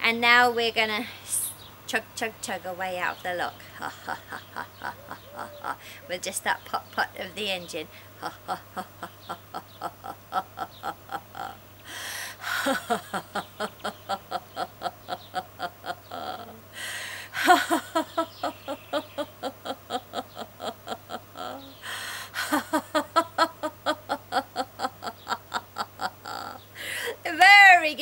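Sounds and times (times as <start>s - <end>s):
woman laughing staccato: 3.8s - 5.8s, 8.2s - 11.6s, 12.4s - 16.6s, 17.4s - 21.8s, 22.4s - 26.6s
loud in-breath: 5.8s - 6.1s, 11.8s - 12.6s, 16.7s - 17.4s, 21.8s - 22.4s, 26.7s - 27.2s.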